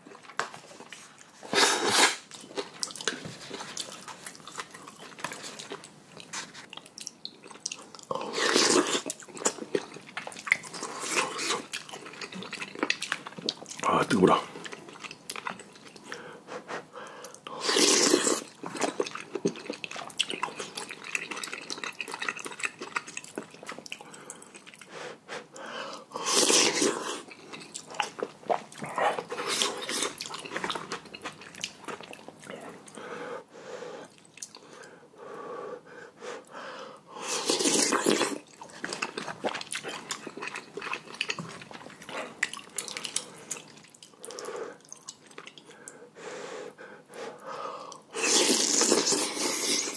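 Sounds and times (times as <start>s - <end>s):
wet chewing and mouth clicks: 0.0s - 16.2s, 17.2s - 24.9s, 26.2s - 33.0s, 34.1s - 34.9s, 37.4s - 46.0s
person slurping noodles: 1.4s - 2.3s, 8.1s - 9.2s, 17.6s - 18.9s, 26.2s - 27.3s, 37.2s - 38.5s, 48.1s - 49.9s.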